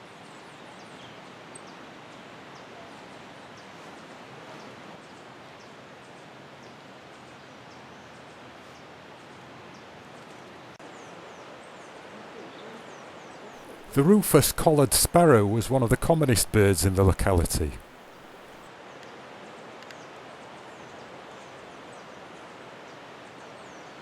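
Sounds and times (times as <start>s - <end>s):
outdoor background hiss: 13.6s - 18.6s.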